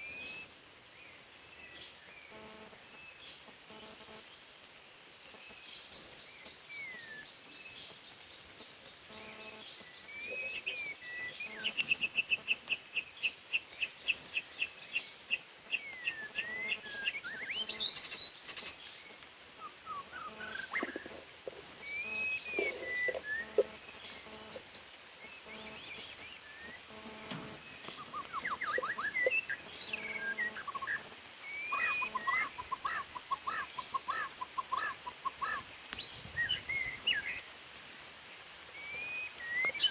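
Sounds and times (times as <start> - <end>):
bird singing whistled phrases: 28.0 - 32.7.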